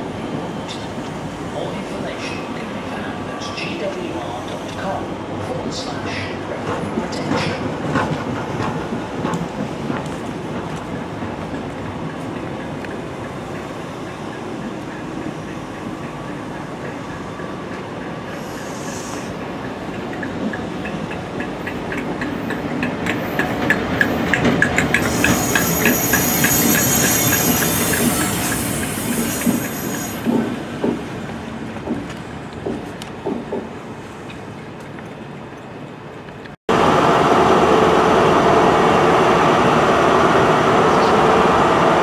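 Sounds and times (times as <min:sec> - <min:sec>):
train wheels rumbling on rail: 0:00.0 - 0:42.0
wheels clicking over rail joints: 0:19.3 - 0:36.6
high-pitched squeal: 0:25.0 - 0:30.3.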